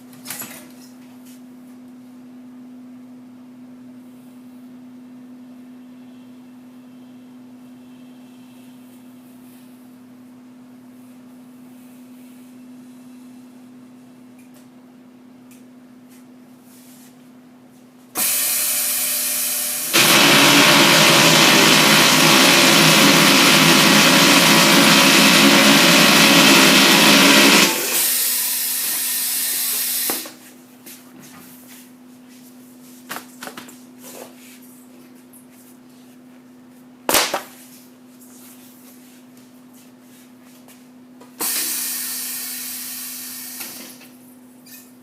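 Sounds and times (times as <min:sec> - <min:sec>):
low machine hum: 0:01.4 - 0:18.0
loud noisy machine running: 0:18.2 - 0:30.1.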